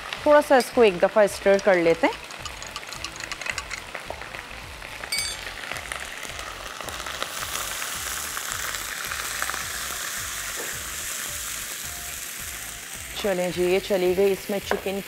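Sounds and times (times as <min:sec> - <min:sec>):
even sizzle: 0:00.0 - 0:15.0
onions crackling in hot oil: 0:00.0 - 0:15.0
stock pouring: 0:01.5 - 0:04.4.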